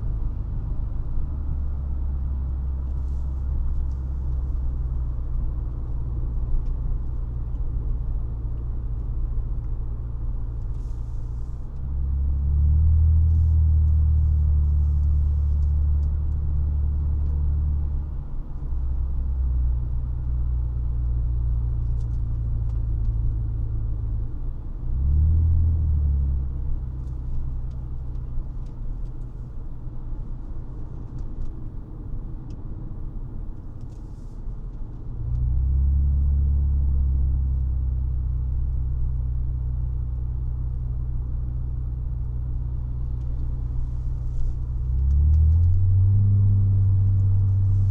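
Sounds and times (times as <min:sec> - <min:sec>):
car exhaust drone: 0:33.0 - 0:47.9.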